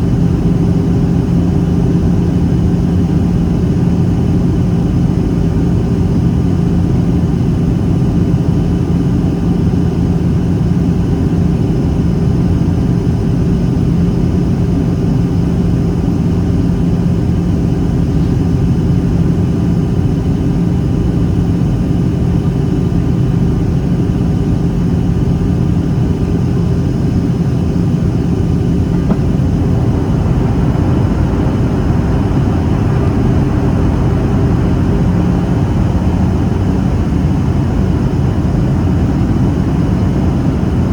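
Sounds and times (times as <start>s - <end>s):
airplane cabin drone: 0.0s - 40.9s
low hum: 26.5s - 34.8s.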